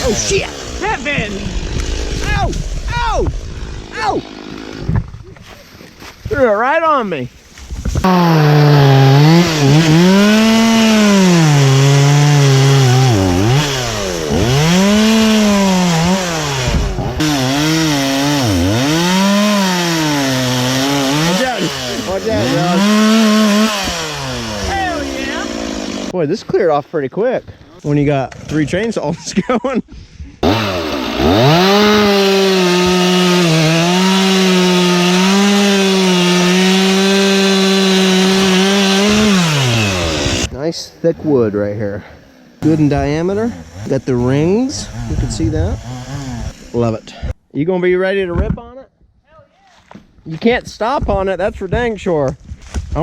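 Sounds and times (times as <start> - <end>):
chainsaw cutting wood: 0.0 - 6.0, 7.6 - 26.2, 30.4 - 40.5, 42.2 - 47.4.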